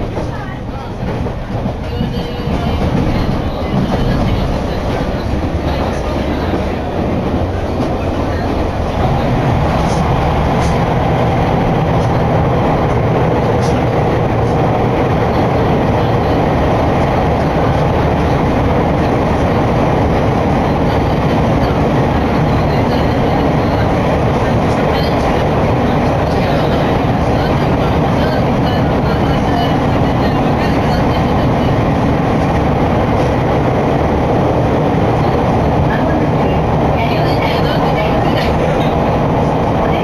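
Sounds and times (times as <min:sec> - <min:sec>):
train wheels rumbling: 0:00.0 - 0:40.0.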